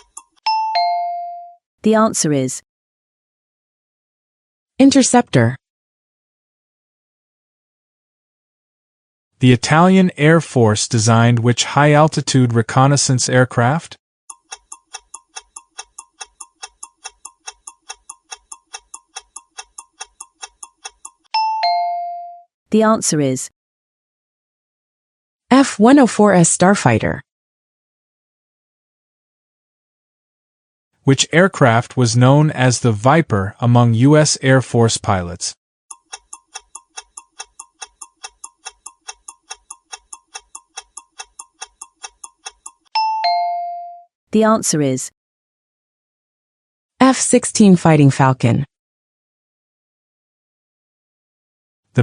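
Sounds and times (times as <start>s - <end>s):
fast clock ticking: 0.0s - 0.4s, 14.3s - 21.3s, 35.9s - 43.0s.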